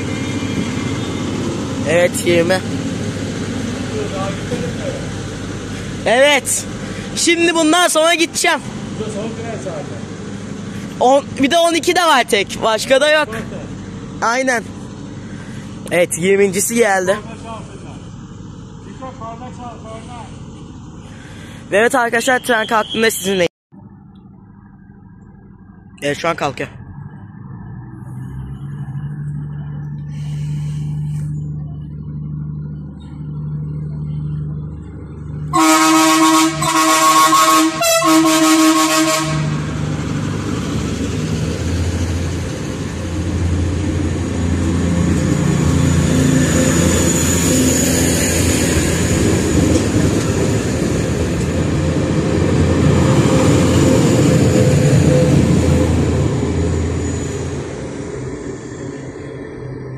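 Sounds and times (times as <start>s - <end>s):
diesel train engine: 0.0s - 59.9s
train horn blasts: 35.5s - 39.6s
train wheels rumbling: 36.2s - 59.9s.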